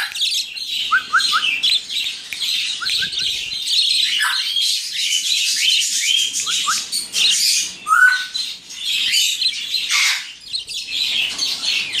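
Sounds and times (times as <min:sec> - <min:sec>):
budgerigars chattering and chirping: 0:00.0 - 0:12.0
budgerigar squawks: 0:09.9 - 0:10.3.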